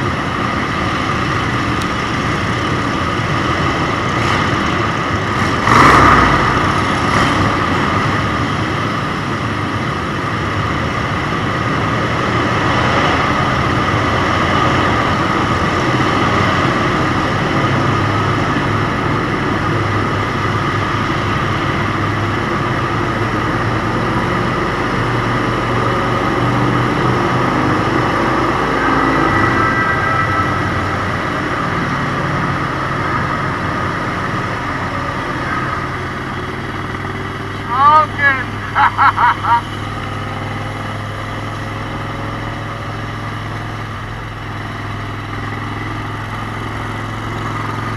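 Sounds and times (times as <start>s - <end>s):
road noise: 0.0s - 47.9s
motorcycle engine rumble: 13.4s - 47.9s.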